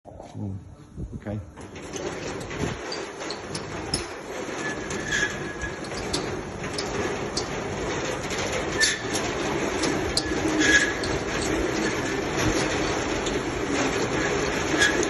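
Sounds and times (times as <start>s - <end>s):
garage door rumbling and rattling: 1.1s - 15.0s
short squeaks: 1.7s - 7.6s, 8.7s - 13.4s, 14.6s - 15.0s.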